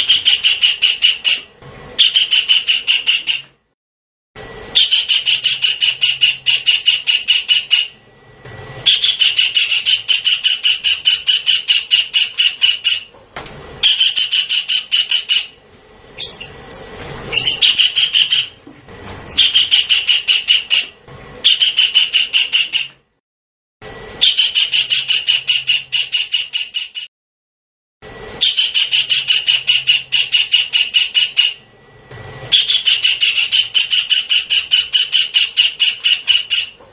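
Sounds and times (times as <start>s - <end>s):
kingfisher calling: 0.0s - 3.4s, 4.8s - 8.0s, 8.8s - 13.1s, 13.8s - 15.6s, 16.2s - 18.6s, 19.3s - 22.9s, 28.4s - 31.6s, 32.5s - 36.8s.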